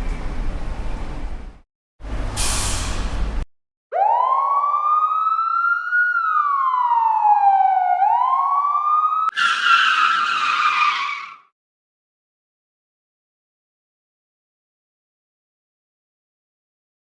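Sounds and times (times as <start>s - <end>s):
burst of hissing noise: 2.4s - 3.2s
siren wailing: 3.9s - 11.4s
tyres skidding: 9.3s - 11.5s.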